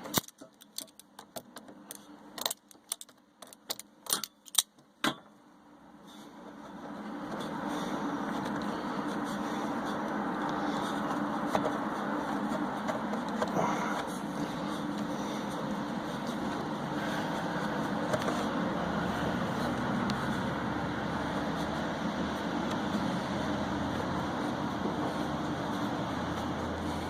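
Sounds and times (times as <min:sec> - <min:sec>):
metallic clicks and clanks of tools: 0:00.0 - 0:05.3
steady rushing noise with hum: 0:00.0 - 0:27.0.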